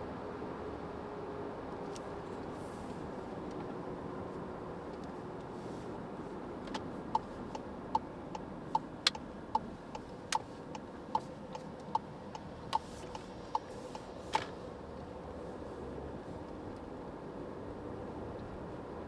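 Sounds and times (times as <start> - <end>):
road noise inside car: 0.0 - 19.0
turn signal ticking: 6.4 - 15.4.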